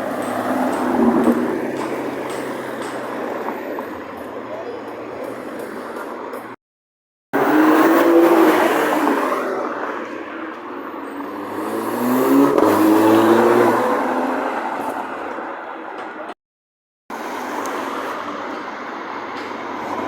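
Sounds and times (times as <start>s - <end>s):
car engine accelerating: 7.4s - 15.5s.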